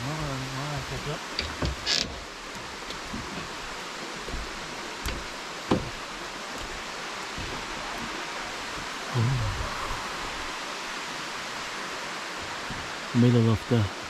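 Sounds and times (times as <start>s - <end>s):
waterfall rushing: 0.0s - 14.0s
low dull thump: 4.3s - 6.8s.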